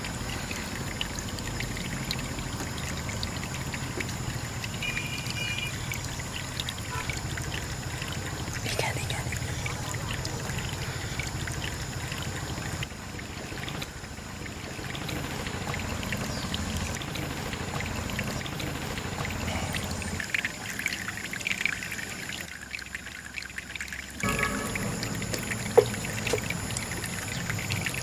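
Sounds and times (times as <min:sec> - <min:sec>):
water drips and clicks: 0:00.0 - 0:28.0
water pouring and trickling: 0:00.0 - 0:28.0.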